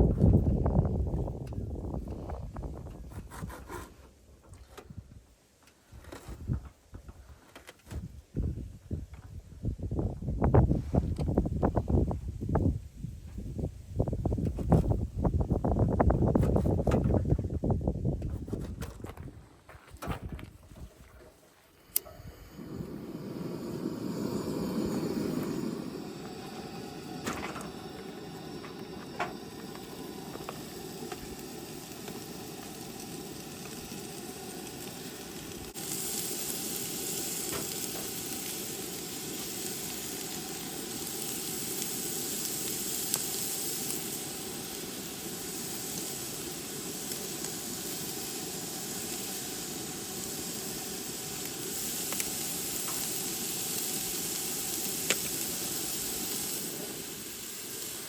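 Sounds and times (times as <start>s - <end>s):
food sizzling in a pan: 22.1s - 58.0s.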